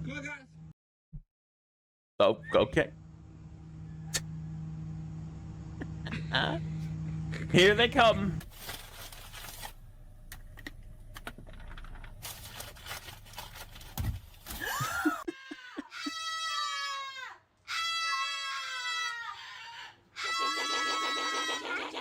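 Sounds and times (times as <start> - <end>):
long high animal cries: 15.2 - 22.0.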